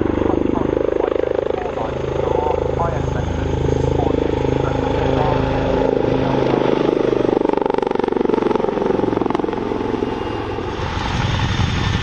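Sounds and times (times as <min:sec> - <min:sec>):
deep rumble: 0:00.0 - 0:12.0
helicopter rotor chopping: 0:00.0 - 0:12.0.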